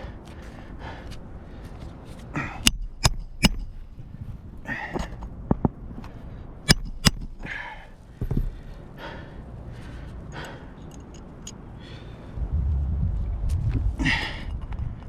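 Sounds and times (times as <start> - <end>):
hammer driving nails into shingle: 2.6 - 4.0, 6.7 - 8.4.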